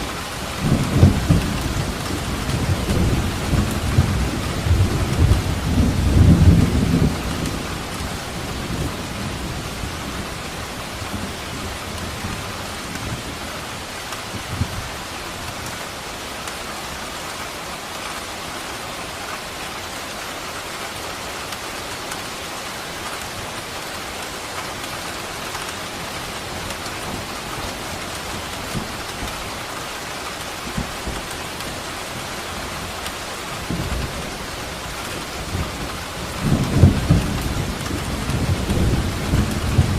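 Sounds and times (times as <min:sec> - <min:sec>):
steady rain: 0:00.0 - 0:39.9
thunder rumbling: 0:33.6 - 0:39.9.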